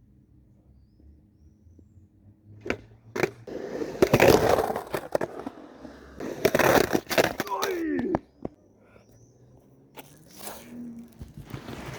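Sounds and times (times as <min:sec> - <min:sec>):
skateboard rolling and scraping: 0:01.2 - 0:11.9
skateboard clacks: 0:02.6 - 0:09.3.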